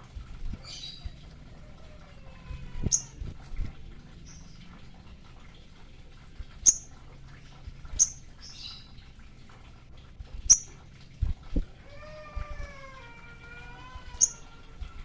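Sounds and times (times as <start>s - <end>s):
bird twittering: 2.8s - 3.2s, 8.0s - 8.9s, 14.1s - 14.5s.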